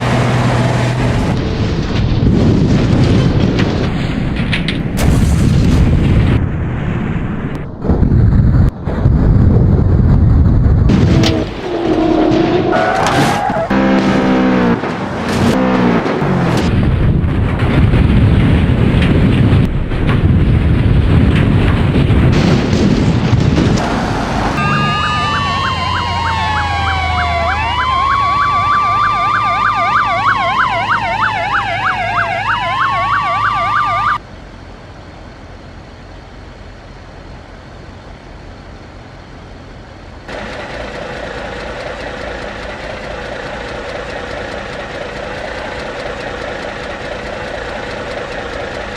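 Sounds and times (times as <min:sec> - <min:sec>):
steady engine hum: 0:07.4 - 0:48.9
emergency sirens wailing: 0:23.8 - 0:34.2.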